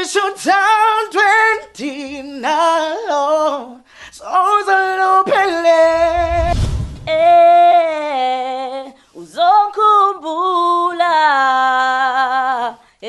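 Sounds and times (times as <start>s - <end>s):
person singing unaccompanied: 0.0s - 6.1s, 7.1s - 12.8s.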